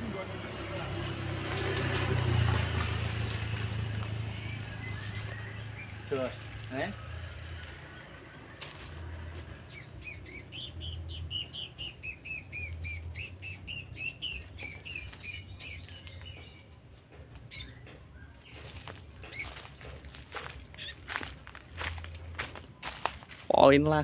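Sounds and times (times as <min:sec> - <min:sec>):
leaves and twigs rustling: 0:00.9 - 0:09.7, 0:14.2 - 0:16.4, 0:18.4 - 0:24.0
bird sharp chirps: 0:03.2 - 0:07.0, 0:09.6 - 0:16.8, 0:17.4 - 0:23.0.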